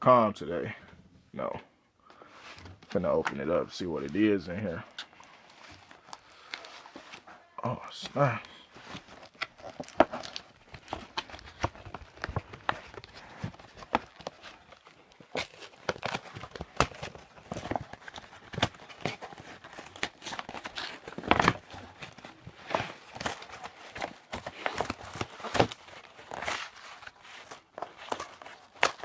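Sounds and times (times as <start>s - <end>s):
packing material rustling: 2.2s - 29.0s.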